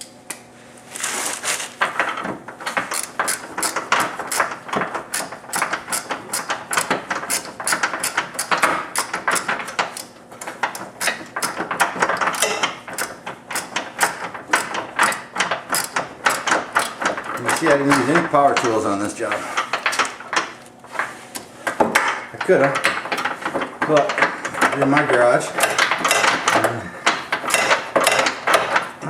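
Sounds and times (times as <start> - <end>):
hand ratchet clicking: 2.9 - 18.8, 25.6 - 28.9.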